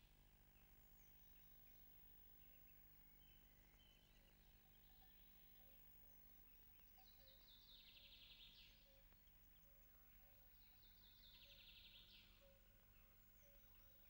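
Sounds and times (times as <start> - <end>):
songbird song with fast trill: 0.0 - 14.0
steady low hum: 0.0 - 14.0.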